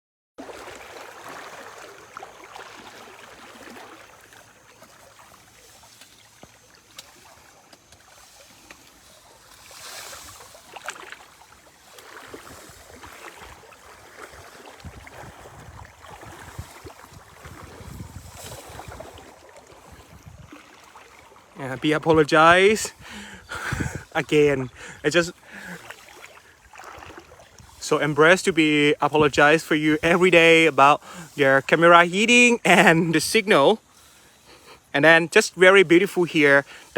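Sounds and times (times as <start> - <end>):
river water running: 0.4 - 36.9
wind buffeting microphone: 12.2 - 20.7, 21.7 - 25.3.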